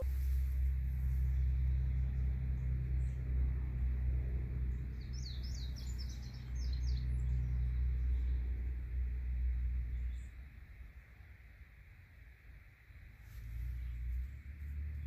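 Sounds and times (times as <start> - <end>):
low rumble: 0.0 - 10.3
songbird singing: 0.0 - 11.5.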